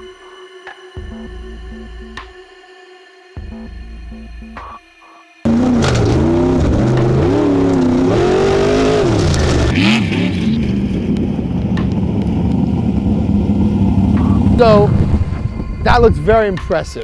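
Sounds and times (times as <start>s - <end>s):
off-road car engine revving: 5.5s - 15.4s.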